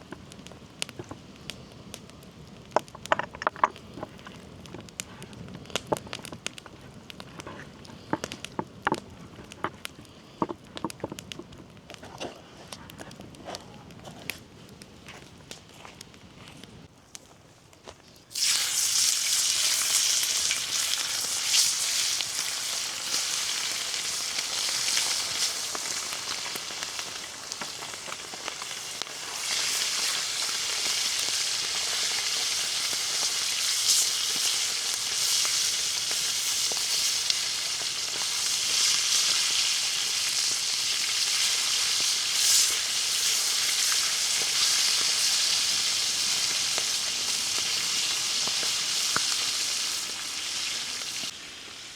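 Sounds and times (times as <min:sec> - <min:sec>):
chicken sizzling on griddle: 0:18.3 - 0:51.9.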